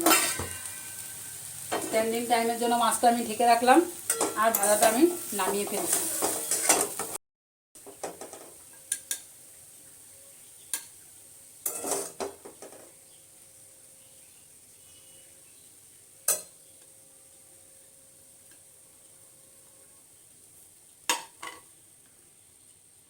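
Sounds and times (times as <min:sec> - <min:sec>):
utensils clinking on dishes: 0:00.0 - 0:01.0, 0:04.1 - 0:04.9, 0:05.5 - 0:07.1
metal spatula scraping pan: 0:00.0 - 0:02.1, 0:04.0 - 0:07.2, 0:11.6 - 0:12.8.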